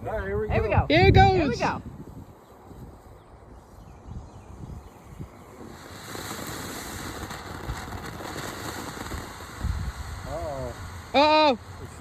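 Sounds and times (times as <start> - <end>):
wind rumbling on microphone: 0.0 - 12.0
firework fountain hissing: 4.5 - 12.0.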